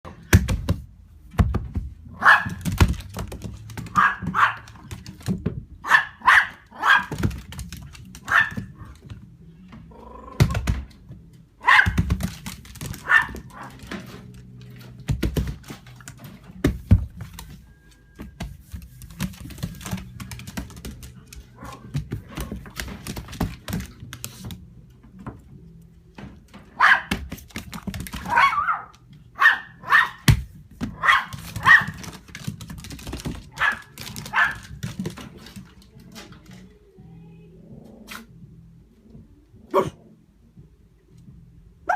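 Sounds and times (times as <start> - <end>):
knocks and thumps: 0.1 - 5.8, 11.8 - 17.6
puppy yipping and barking: 5.8 - 7.1, 28.3 - 30.2.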